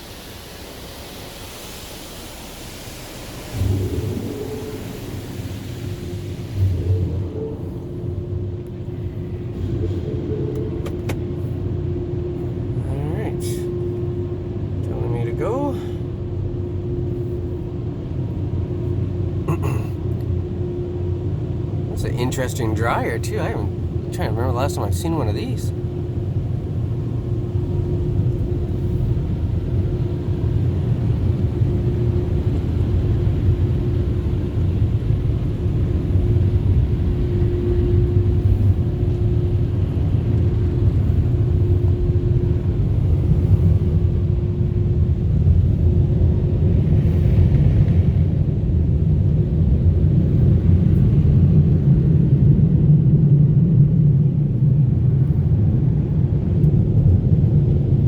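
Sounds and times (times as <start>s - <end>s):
car wash air dryers blowing: 0.0s - 58.0s.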